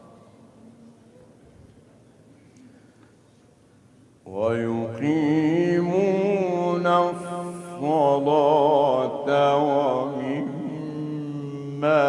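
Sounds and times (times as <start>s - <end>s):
man reciting melodically: 4.2s - 12.0s.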